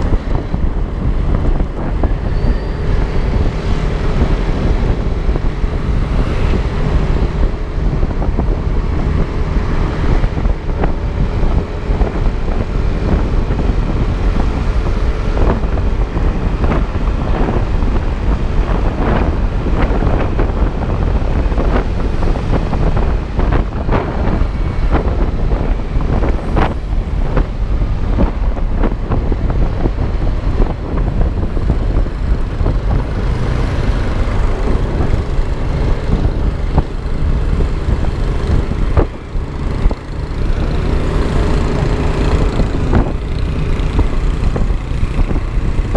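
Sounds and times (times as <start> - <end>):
road noise: 0.0 - 45.9
wind buffeting microphone: 0.0 - 45.9
scooter engine: 31.0 - 45.9.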